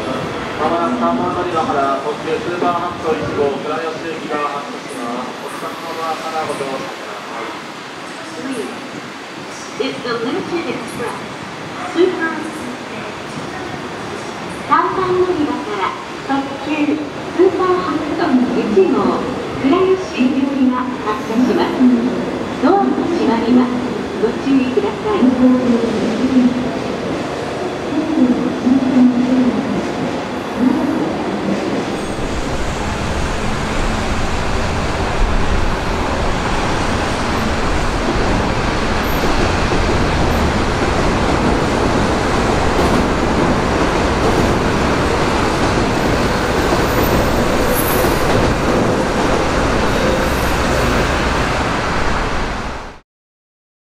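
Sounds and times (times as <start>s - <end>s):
train wheels rumbling: 30.5s - 52.6s.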